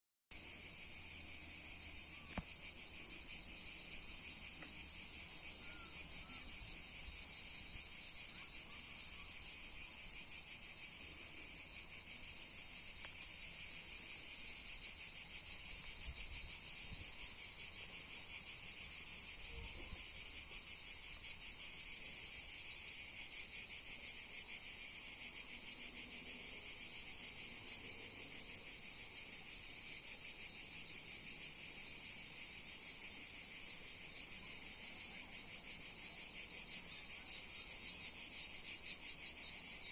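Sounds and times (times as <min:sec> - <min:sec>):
cicadas buzzing: 0:00.3 - 0:39.9.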